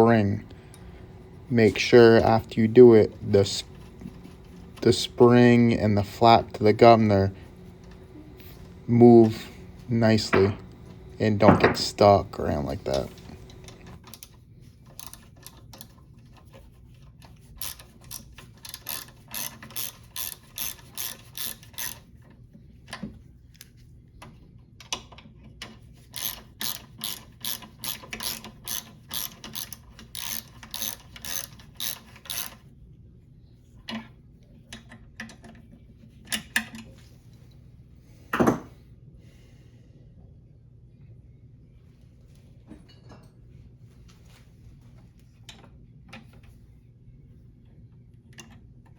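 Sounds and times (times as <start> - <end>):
ratchet wrench clicking: 17.6 - 22.0, 26.2 - 32.6.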